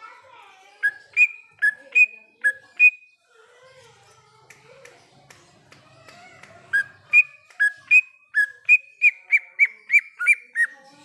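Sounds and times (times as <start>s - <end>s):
bird whistling song: 0.8s - 3.2s, 6.7s - 10.8s.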